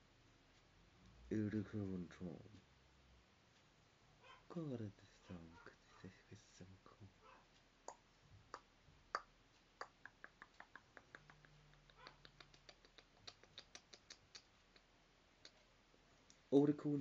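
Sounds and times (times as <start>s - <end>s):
faint sharp clicks: 7.8s - 16.5s.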